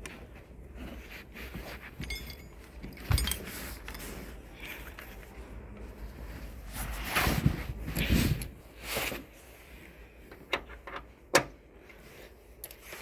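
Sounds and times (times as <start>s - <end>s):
rustling scrapes: 0.2s - 9.8s.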